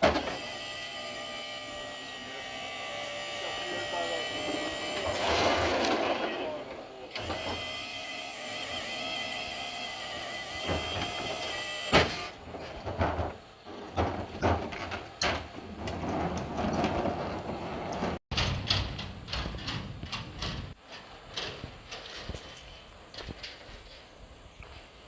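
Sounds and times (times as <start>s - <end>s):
metal clanks and rattles: 5.0s - 7.5s, 12.0s - 24.9s.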